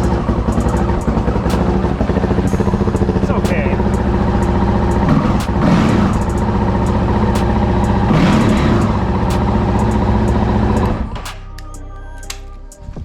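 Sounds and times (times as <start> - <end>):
motorcycle engine idling: 0.0 - 11.2
engine throttle blip: 0.0 - 12.4.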